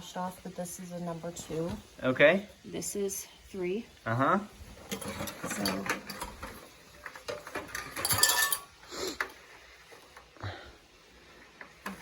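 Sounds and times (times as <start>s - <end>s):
milking machine parts clinking: 4.9s - 8.7s.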